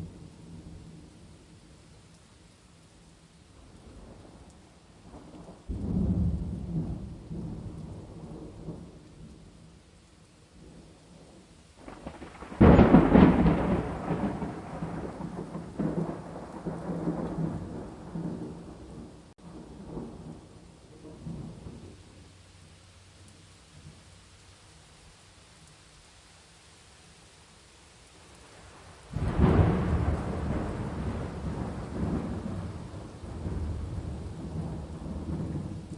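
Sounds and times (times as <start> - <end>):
steady rain: 0.0 - 35.9
thunder rumbling: 3.8 - 9.6, 10.6 - 22.2, 28.5 - 35.9.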